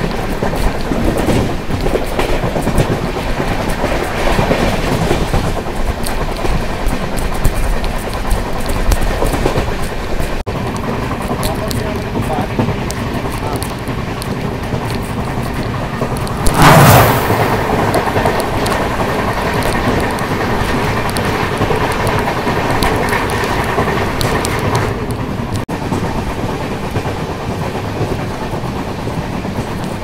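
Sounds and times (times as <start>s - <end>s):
train wheels rumbling on rails: 0.0s - 30.0s
sudden loud blast: 16.4s - 17.8s.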